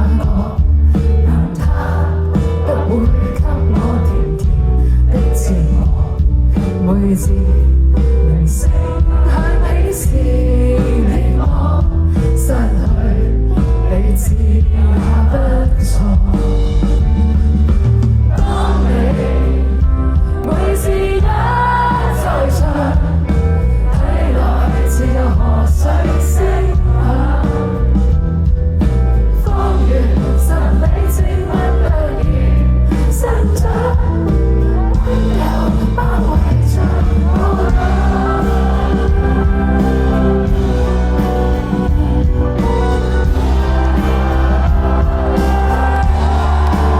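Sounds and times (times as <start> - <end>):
person singing: 0.0 - 16.9, 29.5 - 46.9
heavy bass: 0.0 - 46.9
live band music: 0.0 - 46.9.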